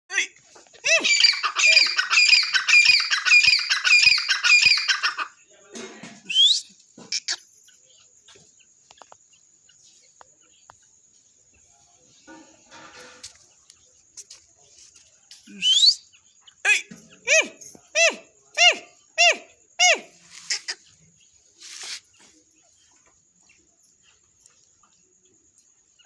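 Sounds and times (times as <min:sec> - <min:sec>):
francolin harsh calls: 0:00.8 - 0:05.4, 0:15.5 - 0:21.0.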